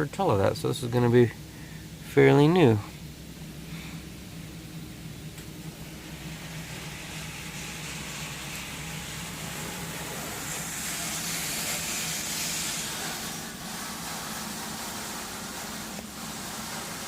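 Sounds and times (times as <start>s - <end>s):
steady low hum: 0.0s - 17.0s
water spray hissing on vehicle: 5.6s - 17.0s.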